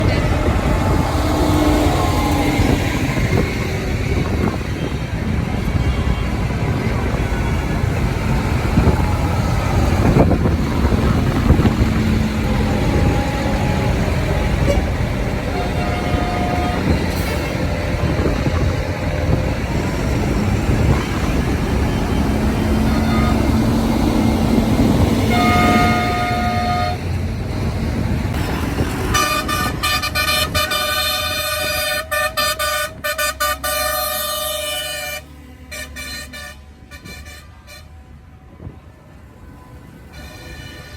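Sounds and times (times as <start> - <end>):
tractor engines running: 0.0 - 40.9
long horn blast: 8.3 - 27.2, 28.4 - 38.7.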